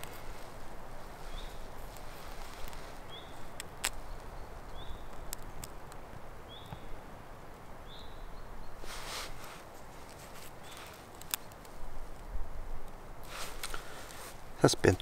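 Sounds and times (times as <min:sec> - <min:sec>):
small sharp clicks: 0:03.5 - 0:06.8, 0:10.0 - 0:12.2.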